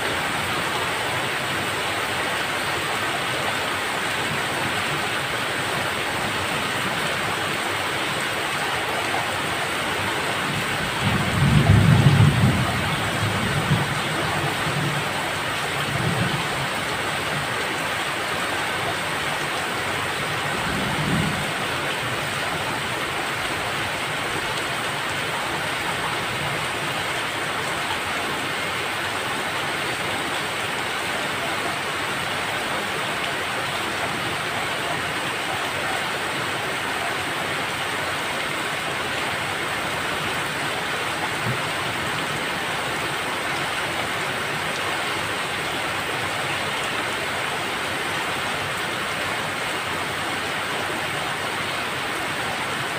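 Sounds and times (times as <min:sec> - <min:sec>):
dense rainfall hiss: 0:00.0 - 0:52.9.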